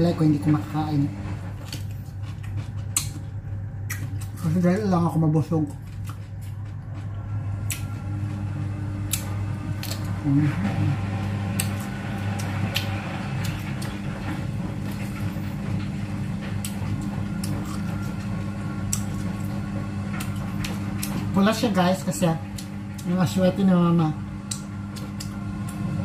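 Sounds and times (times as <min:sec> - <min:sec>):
low mechanical hum: 0:00.0 - 0:26.0
person chewing: 0:01.6 - 0:04.5, 0:05.7 - 0:07.9, 0:09.0 - 0:10.9, 0:11.5 - 0:14.0, 0:16.6 - 0:19.6, 0:24.4 - 0:25.9.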